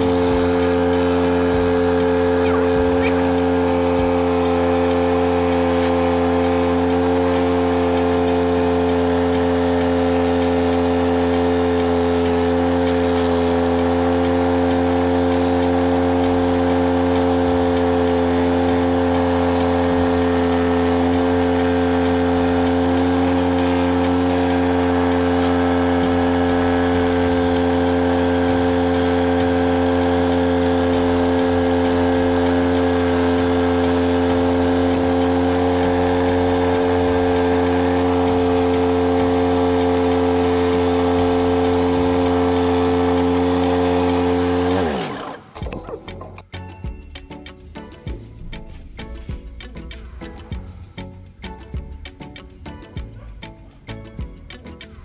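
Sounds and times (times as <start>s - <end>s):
angle grinder motor running: 0.0s - 46.5s.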